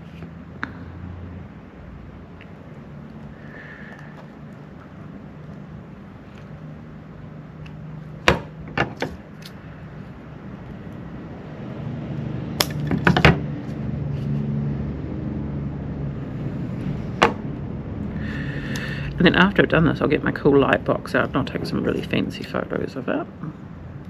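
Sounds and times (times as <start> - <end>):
low steady hum: 0.0 - 24.0
scissors snipping wire stems: 12.6 - 12.9.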